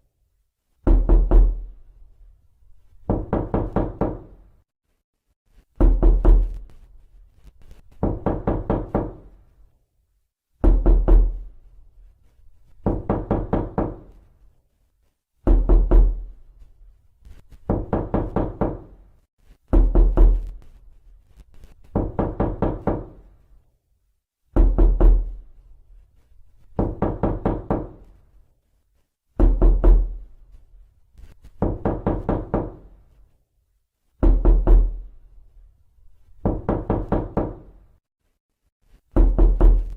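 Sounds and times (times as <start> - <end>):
knocking on a door: 0.8 - 1.7, 3.0 - 4.4, 5.8 - 6.6, 8.0 - 9.4, 10.6 - 11.5, 12.8 - 14.2, 15.4 - 16.3, 17.6 - 19.0, 19.7 - 20.6, 21.9 - 23.3, 24.5 - 25.4, 26.8 - 28.1, 29.4 - 30.2, 31.6 - 32.9, 34.2 - 35.1, 36.4 - 37.8, 39.1 - 39.9.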